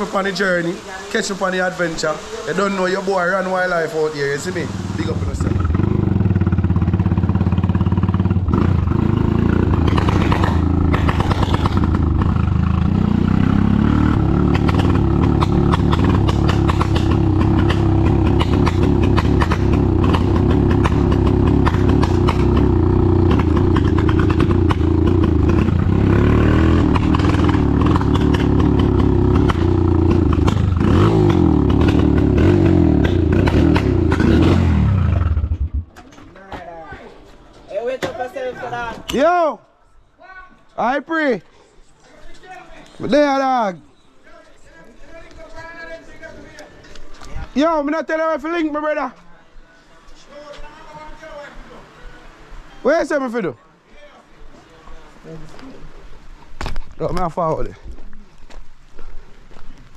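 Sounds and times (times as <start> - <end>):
motorcycle engine running: 5.0 - 35.9.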